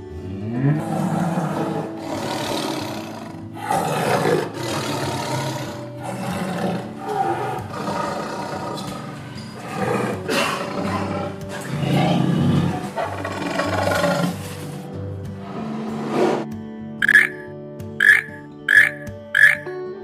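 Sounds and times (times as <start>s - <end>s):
background music: 0.0s - 20.0s
lion roaring: 0.2s - 14.6s.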